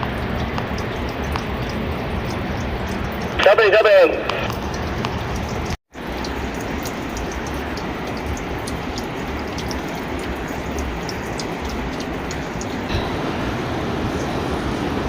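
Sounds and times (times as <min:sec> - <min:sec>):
underground river rushing: 0:00.0 - 0:15.0
small scattered clicks: 0:04.2 - 0:12.8.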